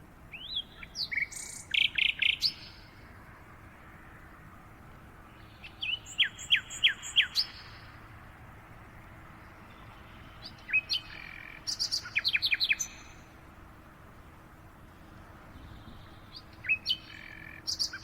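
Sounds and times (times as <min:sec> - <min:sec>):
faint background hiss: 0:00.0 - 0:18.0
bird chirping: 0:00.3 - 0:02.9, 0:05.3 - 0:08.0, 0:09.4 - 0:13.3, 0:15.5 - 0:18.0.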